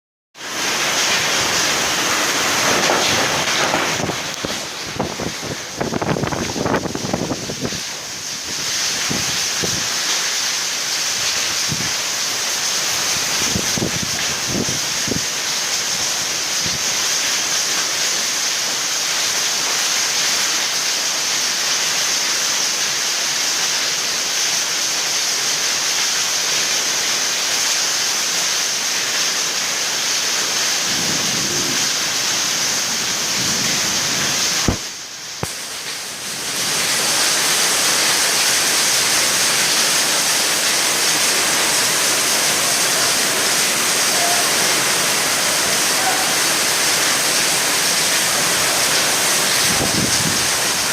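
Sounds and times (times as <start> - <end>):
heavy rain pouring: 0.4 - 50.9.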